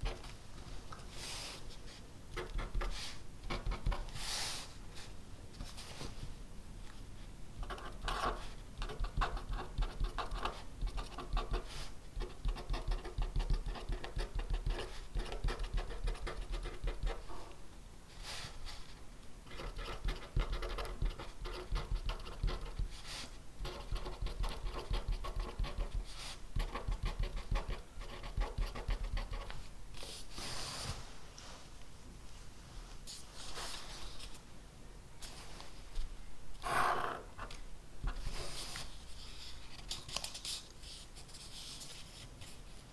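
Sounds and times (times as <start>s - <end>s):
pen scratching on paper: 7.6s - 17.3s, 19.5s - 29.6s
paper rustling: 38.3s - 42.7s.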